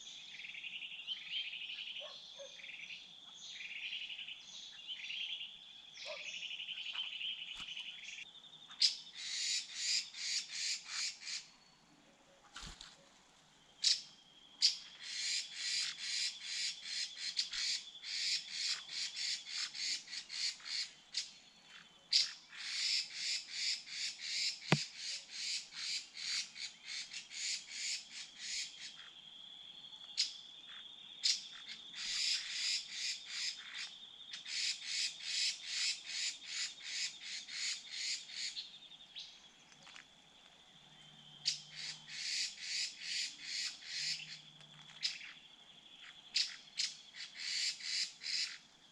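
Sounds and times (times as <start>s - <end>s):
bird calling with harsh notes: 13.8s - 29.2s, 41.4s - 45.4s.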